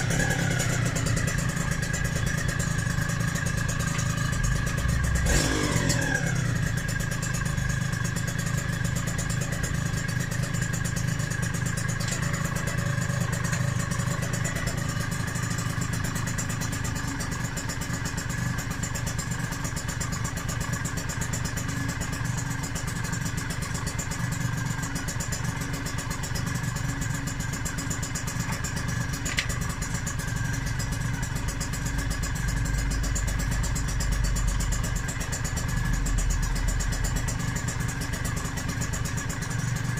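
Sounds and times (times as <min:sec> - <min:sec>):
two-stroke engine idling: 0:00.0 - 0:39.9.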